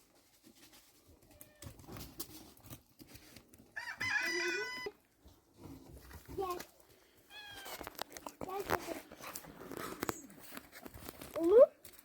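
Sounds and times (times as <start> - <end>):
rooster crowing: 3.8 - 5.0.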